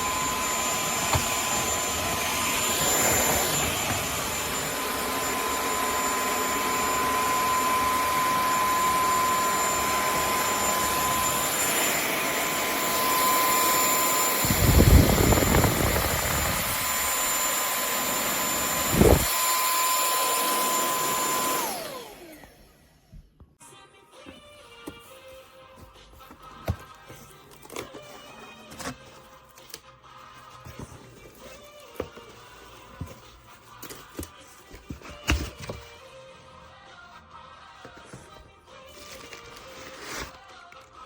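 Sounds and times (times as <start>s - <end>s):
vacuum cleaner whining: 0.0s - 23.3s.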